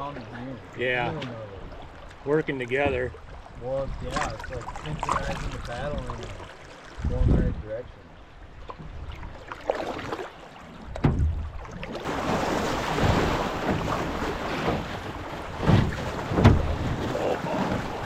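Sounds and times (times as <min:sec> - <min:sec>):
water rushing against hull: 0:00.0 - 0:18.0
paddle strokes knocking and splashing: 0:01.0 - 0:07.5, 0:08.6 - 0:18.0
wind buffeting microphone: 0:07.0 - 0:07.9.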